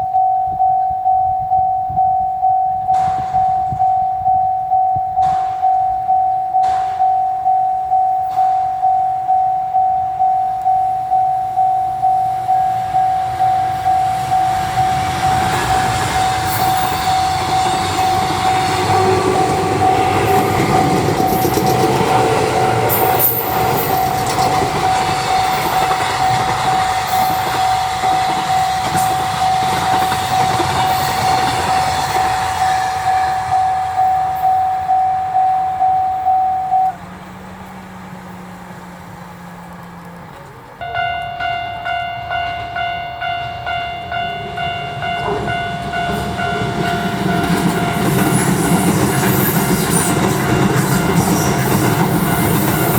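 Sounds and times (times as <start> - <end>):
level crossing alarm ringing: 0.0 - 37.1, 40.8 - 52.9
train wheels clacking over rail joints: 3.0 - 3.8, 5.2 - 5.8, 6.6 - 7.3, 14.2 - 34.5, 45.0 - 52.9.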